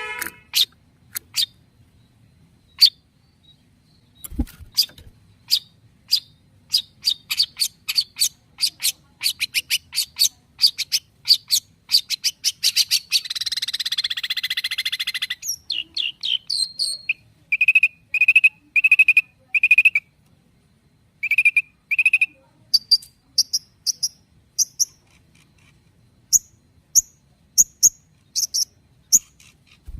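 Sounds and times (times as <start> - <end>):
high squeaky bird notes: 0.0 - 1.6
bird song with chips and trills: 0.0 - 20.1, 21.2 - 29.9.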